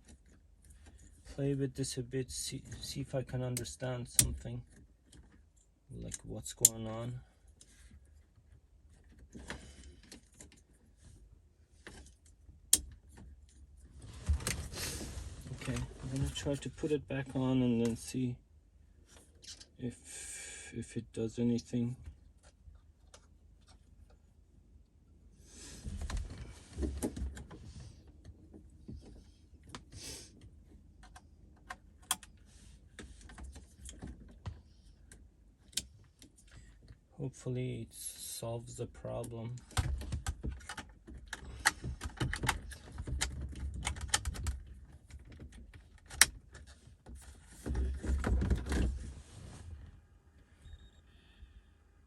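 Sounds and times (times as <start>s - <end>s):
plastic and connectors rustling: 39.6s - 49.8s.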